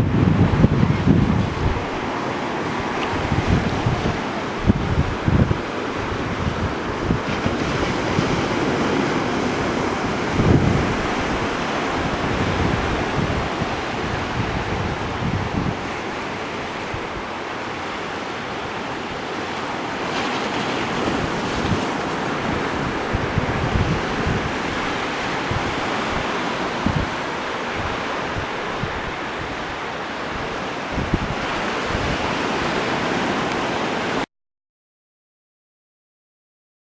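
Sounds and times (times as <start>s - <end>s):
wind buffeting microphone: 0.0s - 34.2s
ocean surf washing in: 0.0s - 34.3s.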